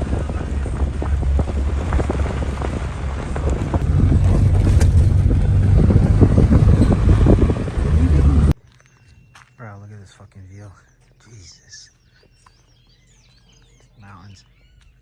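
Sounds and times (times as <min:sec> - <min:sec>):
car driving on bumpy dirt road: 0:00.0 - 0:08.6
wind buffeting microphone: 0:00.0 - 0:08.6
jolts and rattles: 0:03.8 - 0:07.0.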